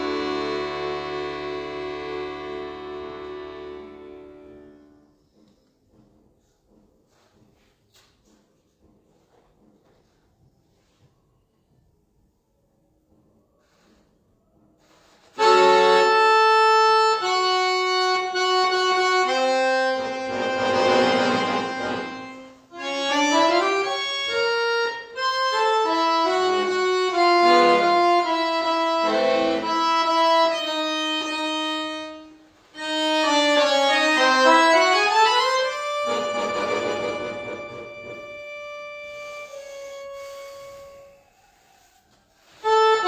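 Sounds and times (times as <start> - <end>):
solo accordion playing: 0.0 - 5.1, 15.4 - 41.2, 42.6 - 43.0.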